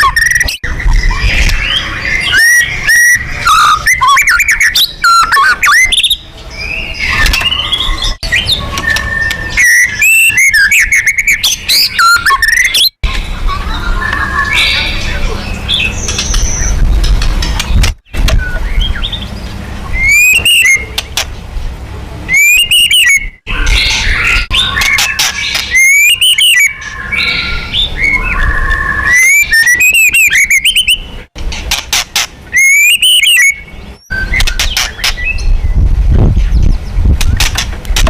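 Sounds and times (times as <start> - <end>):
songbird whistling with clicks: 7.1 - 13.0, 20.0 - 21.3, 22.3 - 23.3, 24.4 - 26.8, 28.1 - 31.0, 32.2 - 35.5
soft bird warbling: 19.9 - 21.2.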